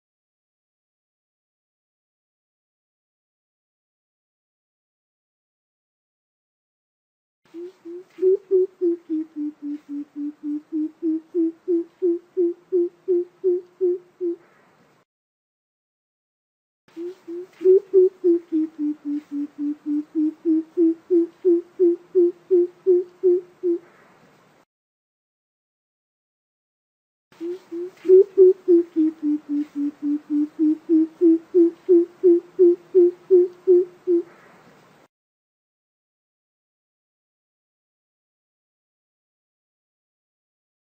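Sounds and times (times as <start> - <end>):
coucal low hooting call: 7.5 - 14.6, 17.0 - 24.0, 27.4 - 34.4.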